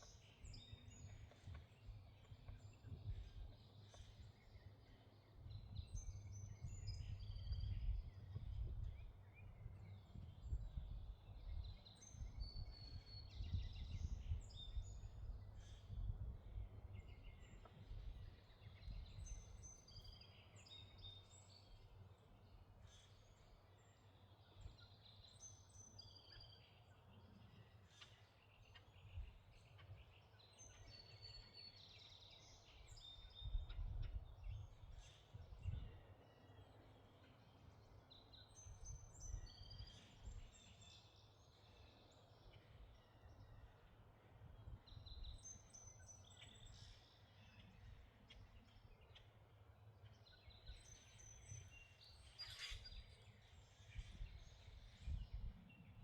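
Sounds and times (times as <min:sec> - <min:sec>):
wind rumble on microphone: 0:00.0 - 0:25.8, 0:28.9 - 0:36.8, 0:38.3 - 0:41.0, 0:41.6 - 0:49.2, 0:50.2 - 0:56.0
songbirds chirping: 0:00.0 - 0:56.0.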